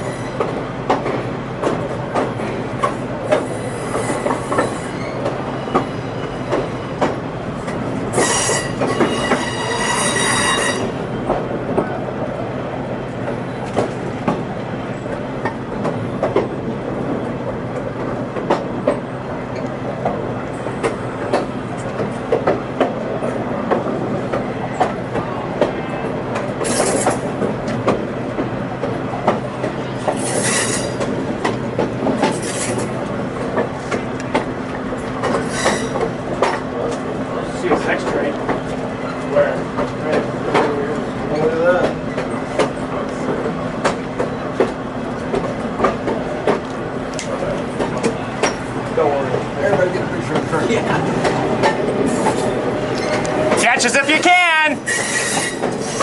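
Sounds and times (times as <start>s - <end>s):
train rumbling on rails: 0.0s - 56.0s
high-pitched wheel squeal: 8.2s - 10.9s, 35.5s - 36.0s
wheels clicking over rail joints: 17.2s - 37.0s.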